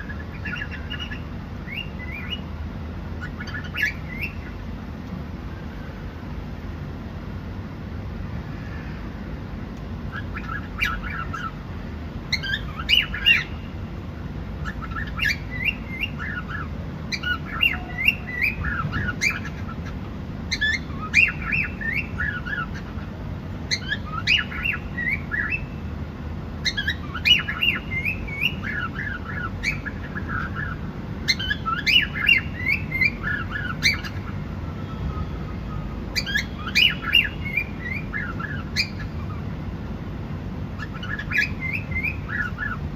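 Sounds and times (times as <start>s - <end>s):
cockatiel chirping and squawking: 0.0s - 2.4s, 3.2s - 4.6s, 10.1s - 11.6s, 12.3s - 13.7s, 14.6s - 23.1s, 23.7s - 25.8s, 26.6s - 34.4s, 35.7s - 39.5s, 40.8s - 42.9s
steady low hum: 0.0s - 42.9s.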